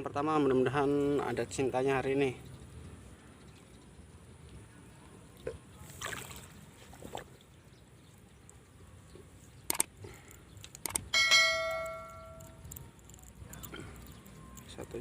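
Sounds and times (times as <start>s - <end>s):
bright metallic ring: 11.1s - 12.6s.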